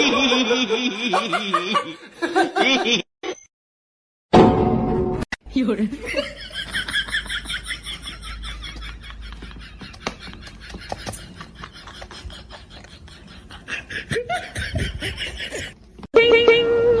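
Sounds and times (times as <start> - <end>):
person laughing: 6.0 - 15.8.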